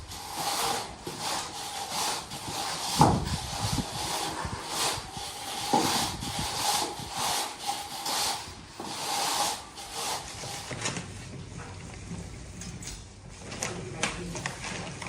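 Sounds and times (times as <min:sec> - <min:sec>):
tiling tool scraping floor: 0:00.0 - 0:11.8.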